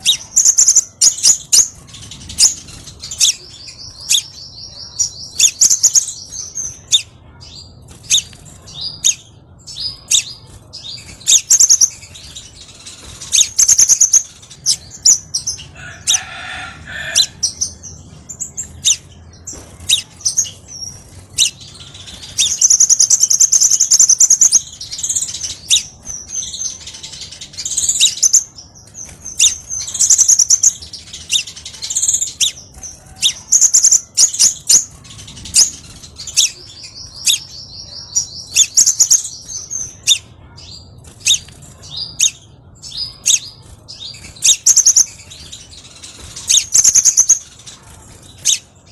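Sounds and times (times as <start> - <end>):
bird chirps and buzzy trills: 0.0 - 48.9.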